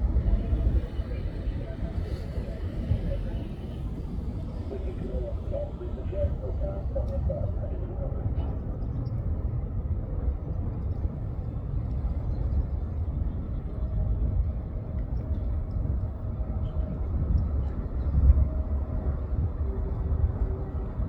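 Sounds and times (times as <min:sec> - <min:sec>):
distant jet airliner rumble: 0:00.0 - 0:10.5.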